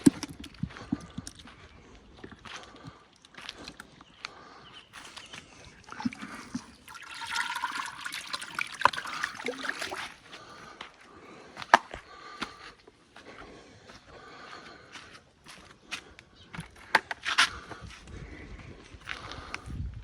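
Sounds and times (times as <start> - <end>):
water running: 5.1 - 10.4.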